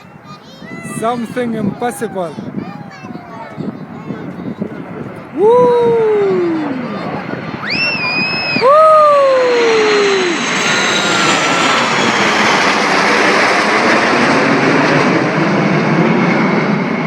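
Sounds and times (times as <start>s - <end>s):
jet aircraft flying past: 0.0s - 17.0s
person shouting: 5.4s - 6.9s, 8.6s - 10.4s.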